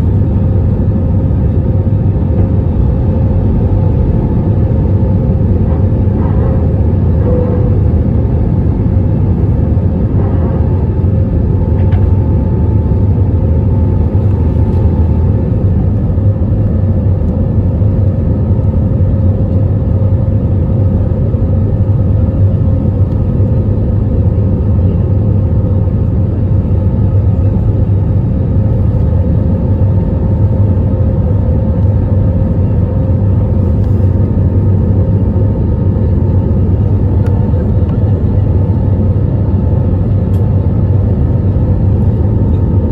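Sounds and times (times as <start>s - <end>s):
constant hum tone: 0.0s - 42.9s
jet cabin rumble: 0.0s - 42.9s
faint higher tone: 6.4s - 8.4s.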